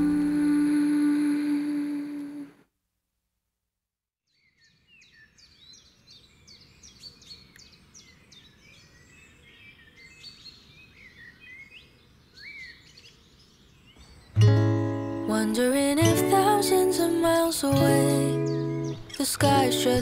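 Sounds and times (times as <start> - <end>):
birds chirping and singing: 4.3 - 17.0, 17.7 - 20.0.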